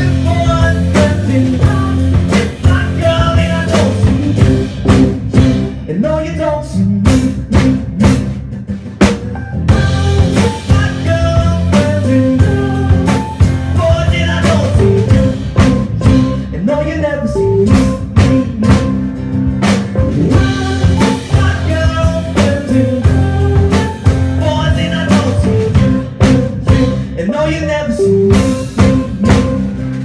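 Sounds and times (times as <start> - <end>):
drum kit beat: 0.0 - 30.0
rock band playing live: 0.0 - 30.0.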